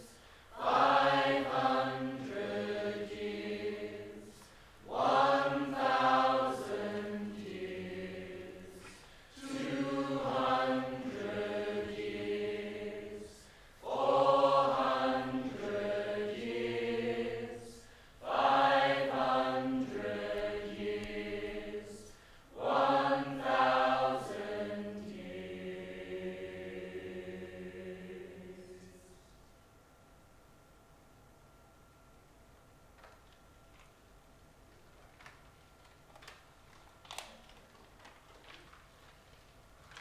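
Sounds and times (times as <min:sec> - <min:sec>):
voices singing in harmony: 0:00.0 - 0:29.3.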